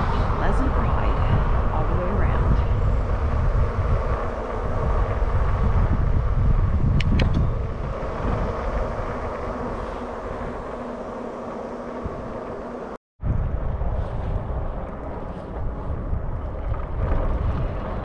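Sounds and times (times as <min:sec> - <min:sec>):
faint electric bike hum: 0:00.0 - 0:18.0
wind buffeting microphone: 0:00.0 - 0:18.0.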